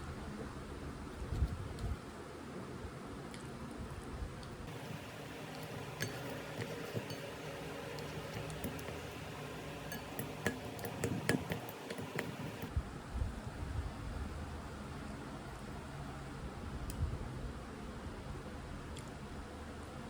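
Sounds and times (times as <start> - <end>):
small hard objects clinking: 4.7 - 12.7.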